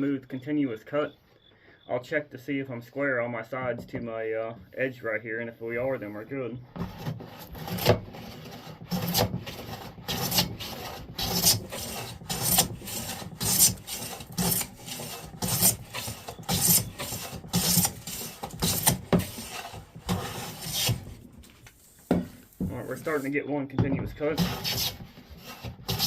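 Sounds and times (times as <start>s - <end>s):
hand plane shaving wood: 6.8s - 23.3s, 24.3s - 26.0s.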